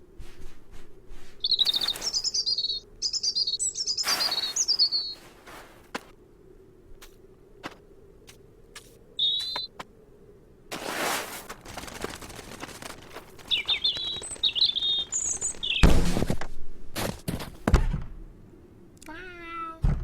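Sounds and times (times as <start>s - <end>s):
small bird chirping: 1.4s - 5.8s, 8.8s - 9.8s, 11.7s - 15.9s
loud thud: 15.8s - 16.6s.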